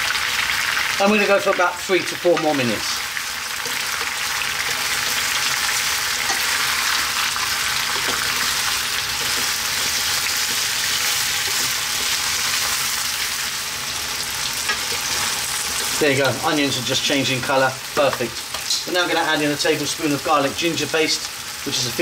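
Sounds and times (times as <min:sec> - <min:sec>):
food sizzling in hot oil: 0:00.0 - 0:22.0
wooden spoon stirring: 0:03.6 - 0:13.4.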